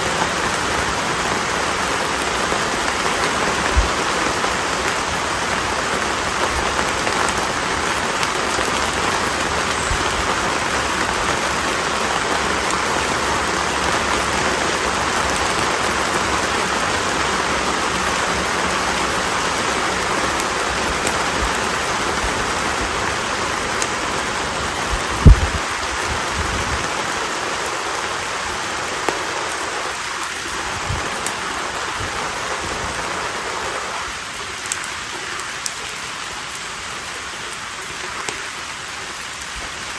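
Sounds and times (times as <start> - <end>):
fire hissing and crackling: 0.0 - 39.9
wood popping in fire: 24.9 - 26.9.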